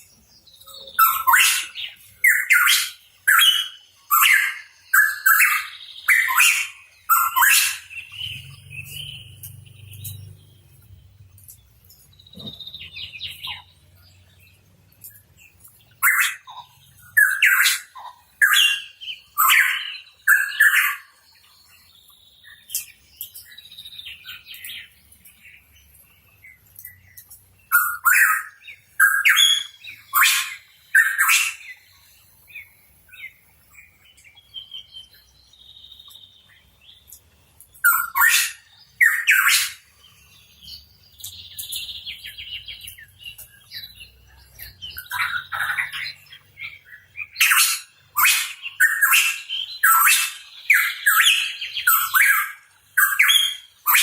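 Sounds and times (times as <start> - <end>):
soft whistled bird notes: 37.8 - 54.0.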